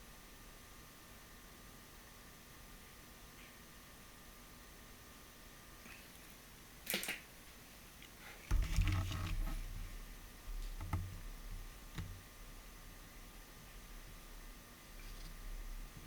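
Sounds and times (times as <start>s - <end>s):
clatter of knocks and thuds: 8.5s - 11.3s.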